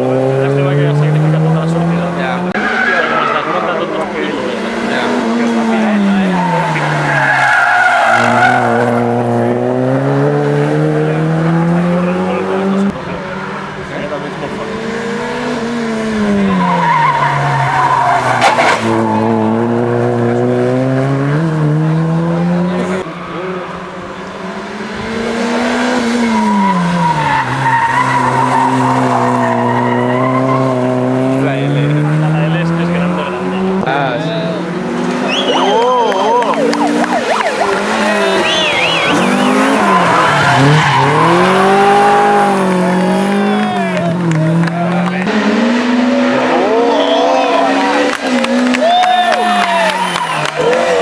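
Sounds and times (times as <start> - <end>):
rally car engine revving: 0.0 - 51.0
tyres squealing: 5.5 - 9.0, 35.3 - 44.0.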